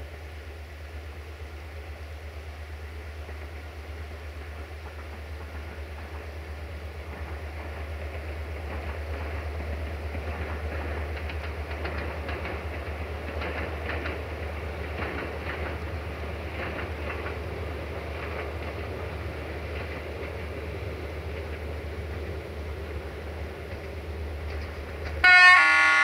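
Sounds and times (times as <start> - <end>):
train engine drone: 0.0 - 26.0
wheels clicking over rail joints: 7.0 - 25.2.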